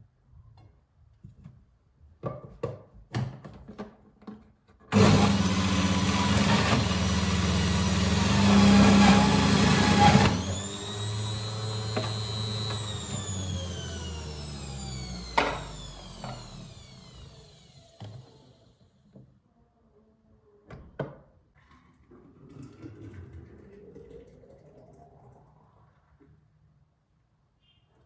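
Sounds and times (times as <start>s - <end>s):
small electric motor whining: 5.0s - 18.9s.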